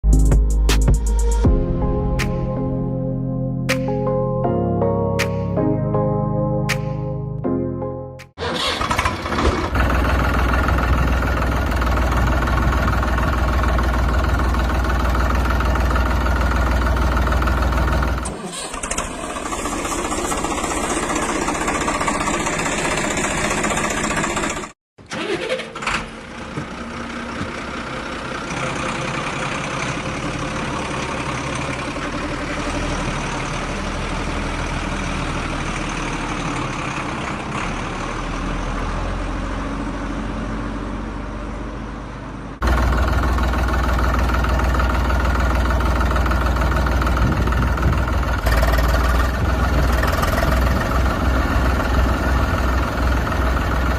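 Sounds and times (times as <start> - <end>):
deep loud engine: 0.0 - 24.8, 25.8 - 53.9
engine running: 8.4 - 53.9.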